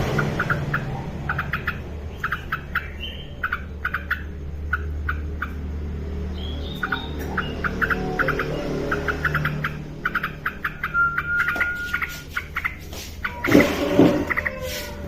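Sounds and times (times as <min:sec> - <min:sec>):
bird sharp chips: 0:06.4 - 0:15.0
bird whistled notes: 0:10.6 - 0:15.0.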